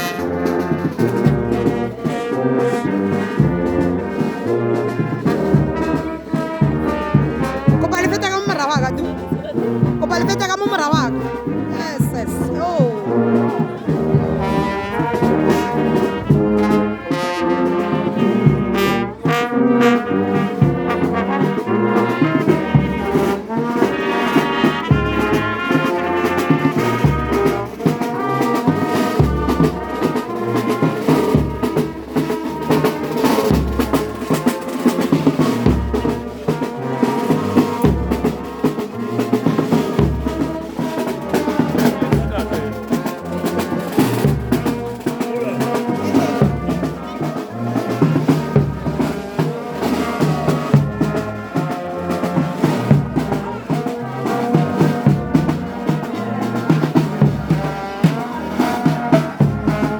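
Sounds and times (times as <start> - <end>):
steady drum beat: 0.0 - 59.9
trombones and trumpets playing: 0.0 - 59.9.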